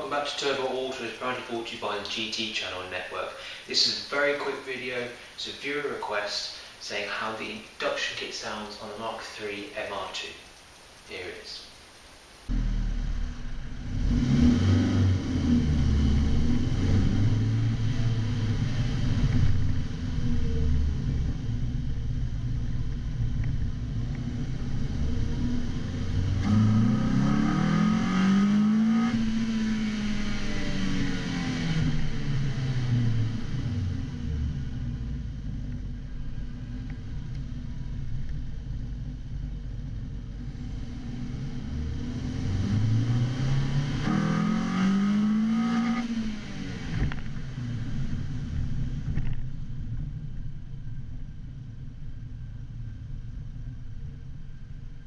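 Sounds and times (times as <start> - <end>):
car engine revving: 12.5 - 49.8.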